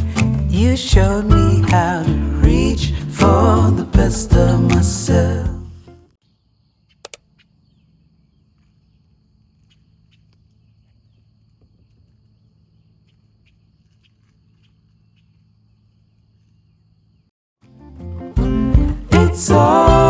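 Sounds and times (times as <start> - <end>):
faint chirps and ticks: 6.2 - 17.3
sharp clicks: 7.0 - 7.3.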